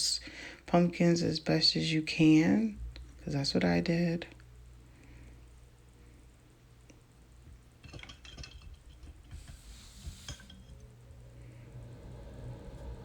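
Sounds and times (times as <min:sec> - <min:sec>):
paintbrush clinking in water cup: 0:07.8 - 0:10.8.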